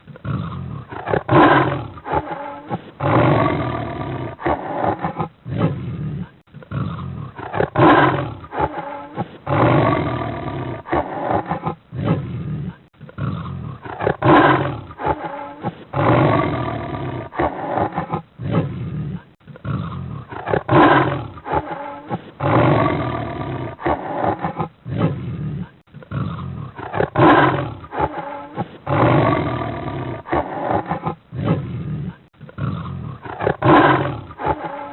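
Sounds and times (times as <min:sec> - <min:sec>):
cheetah growling calls: 0:00.1 - 0:34.9.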